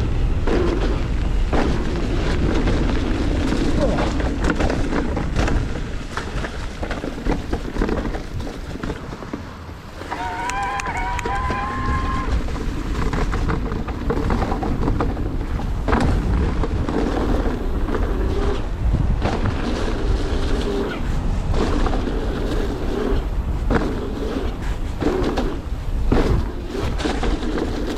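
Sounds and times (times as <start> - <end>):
bike rattling and clicking: 0.0 - 27.9
wind on camera mic: 0.0 - 27.9
high squeal: 10.0 - 12.5.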